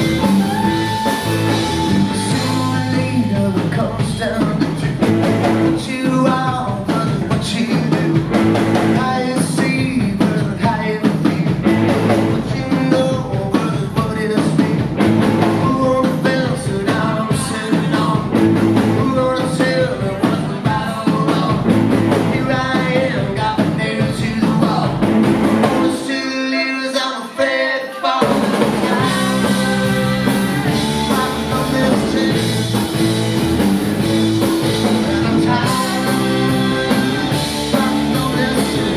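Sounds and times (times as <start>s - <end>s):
bass guitar: 0.0s - 26.2s, 28.2s - 38.9s
drum kit: 0.0s - 26.3s, 27.8s - 38.9s
guitars: 0.0s - 38.9s.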